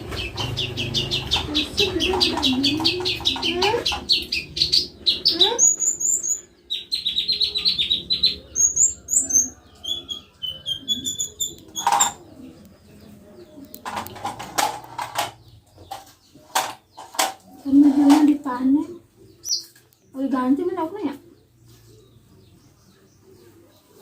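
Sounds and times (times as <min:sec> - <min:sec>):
songbird trilling: 0:00.2 - 0:12.3, 0:19.3 - 0:19.8.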